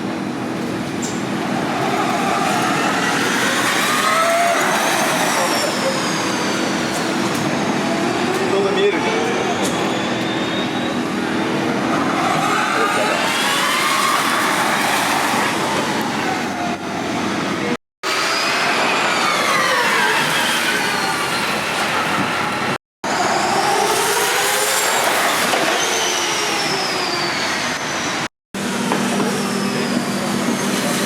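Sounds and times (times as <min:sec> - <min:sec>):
tyre and road noise: 0:00.0 - 0:31.0
electric race cars whining past: 0:01.5 - 0:10.3, 0:18.1 - 0:31.0.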